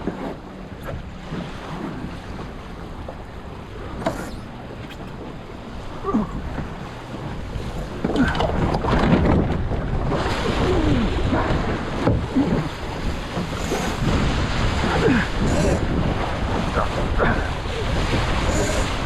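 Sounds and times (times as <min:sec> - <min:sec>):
water splashing along hull: 0:00.0 - 0:19.0
wind buffeting microphone: 0:00.0 - 0:19.0.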